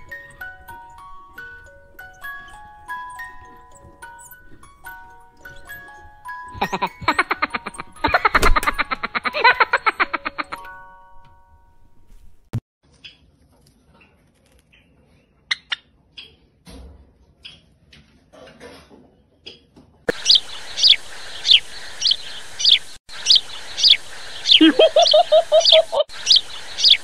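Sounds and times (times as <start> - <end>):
small birds chirping: 0.0 - 8.2, 19.4 - 27.0.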